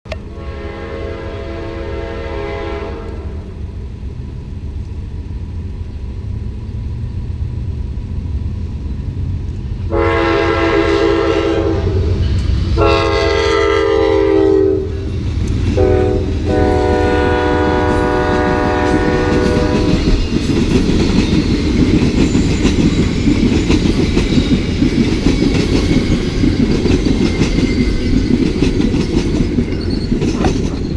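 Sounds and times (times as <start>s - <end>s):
train rumbling past: 0.1s - 30.9s
train air horn blasts: 0.2s - 3.6s, 9.9s - 15.1s, 15.7s - 20.0s
wheels clacking over rail joints: 18.1s - 30.9s.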